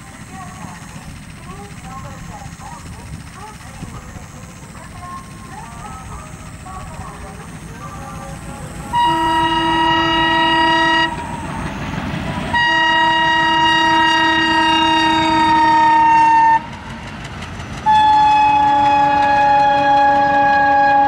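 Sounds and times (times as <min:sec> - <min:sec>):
train running: 0:00.0 - 0:21.0
locomotive horn blasts: 0:08.9 - 0:11.4, 0:12.5 - 0:16.6, 0:17.9 - 0:21.0.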